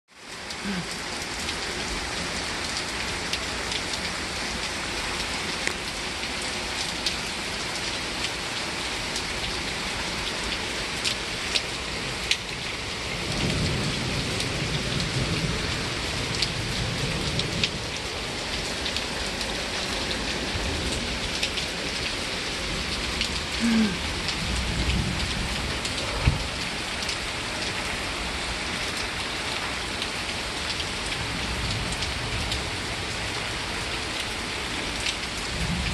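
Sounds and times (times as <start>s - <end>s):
steady rain falling: 0.1s - 35.9s
low rumbles of thunder: 13.1s - 19.2s, 22.7s - 27.2s, 35.4s - 35.9s.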